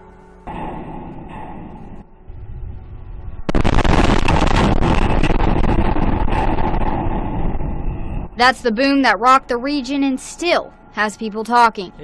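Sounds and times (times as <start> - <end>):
loud boom: 0.5 - 8.4
heavy rumbling: 0.5 - 10.2.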